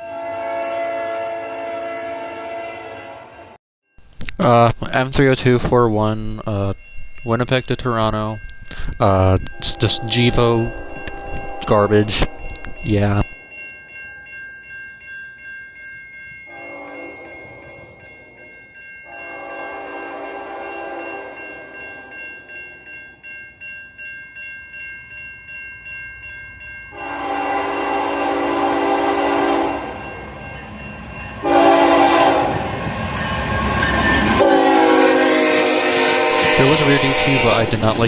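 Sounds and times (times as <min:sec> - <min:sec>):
locomotive horn blasts: 0:00.0 - 0:03.6, 0:09.4 - 0:13.4, 0:19.2 - 0:21.3, 0:27.0 - 0:29.9, 0:31.4 - 0:32.8, 0:34.2 - 0:38.0
bell ringing: 0:04.0 - 0:38.0.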